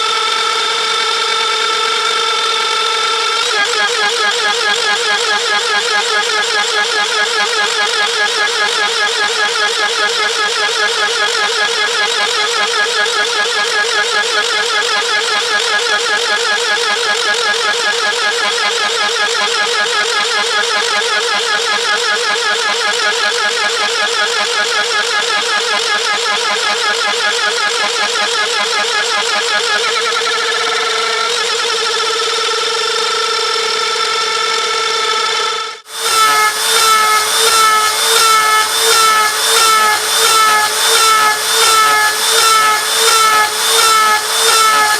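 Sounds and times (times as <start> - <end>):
router spindle milling metal whine: 0.0 - 44.9
sharp cutter chirps: 35.7 - 44.9.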